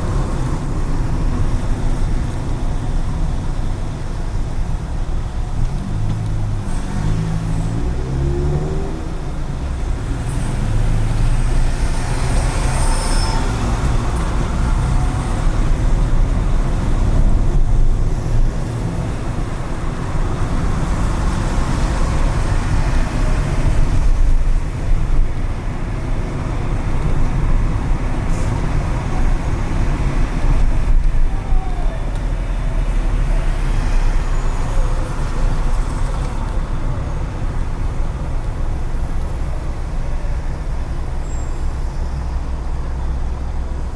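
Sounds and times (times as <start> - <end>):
car engine and tyre rumble: 0.0 - 43.9
passing vehicles: 0.0 - 43.9.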